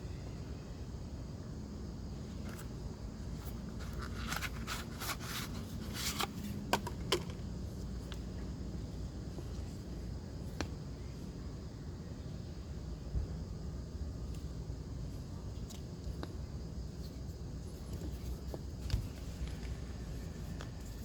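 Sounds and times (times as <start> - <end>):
handling clicks and scrapes: 3.3 - 7.4.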